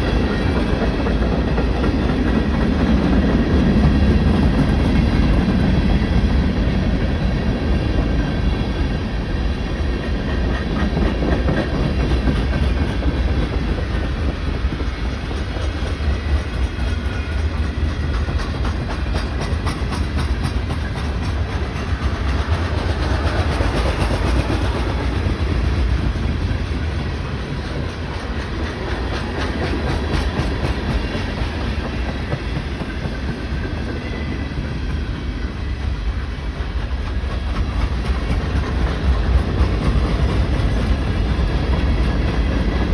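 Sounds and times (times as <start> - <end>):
train cars rumbling past: 0.0 - 42.9
wheels clacking over rail joints: 10.5 - 33.1.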